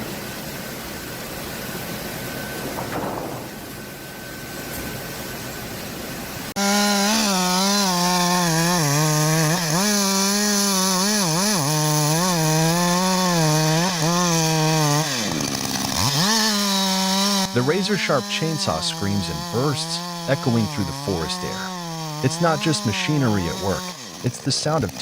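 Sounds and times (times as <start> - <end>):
chainsaw cutting wood: 6.5 - 25.0.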